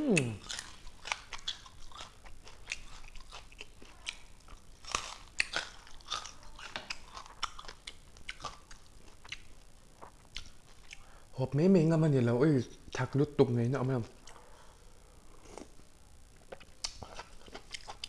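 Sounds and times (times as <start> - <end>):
person chewing food: 0.0 - 11.2, 14.0 - 14.7, 15.4 - 15.8, 16.4 - 18.0.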